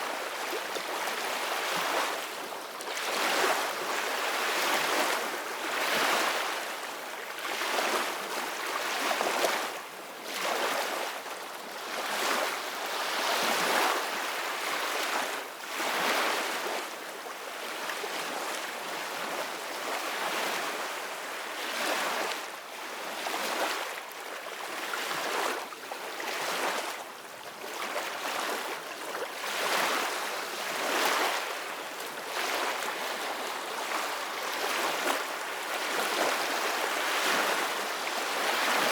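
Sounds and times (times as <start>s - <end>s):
ocean waves breaking on shore: 27.7s - 38.9s.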